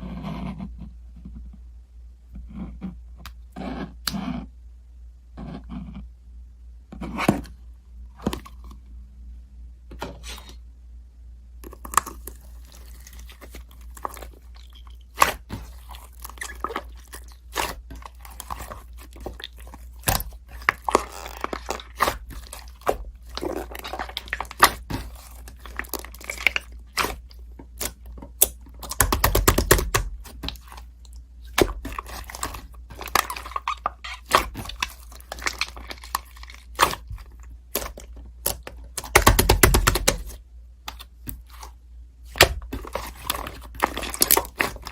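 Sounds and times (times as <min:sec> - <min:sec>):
steady low hum: 0:00.0 - 0:44.9
handling clicks and scratching: 0:31.5 - 0:44.9.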